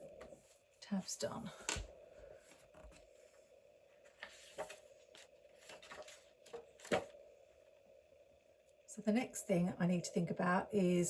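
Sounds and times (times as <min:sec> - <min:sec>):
paper rustling: 0:04.0 - 0:07.2.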